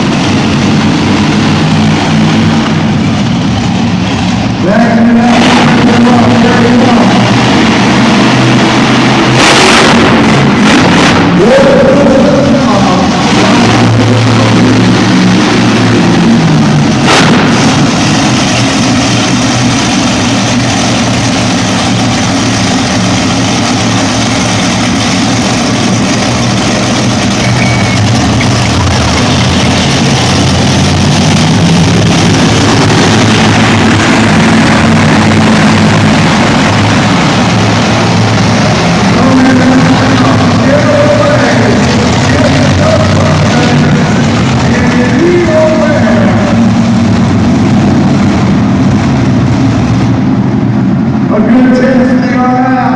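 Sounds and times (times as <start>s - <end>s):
truck engine revving: 0.0s - 52.9s.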